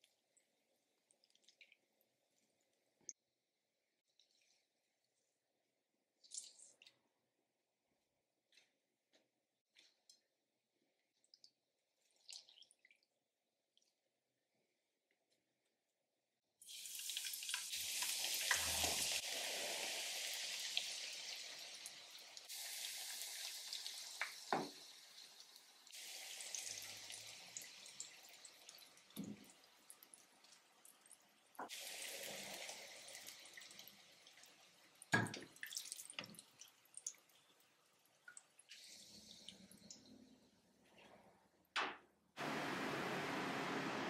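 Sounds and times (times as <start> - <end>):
eggplant sizzling in oil: 16.6 - 28.4.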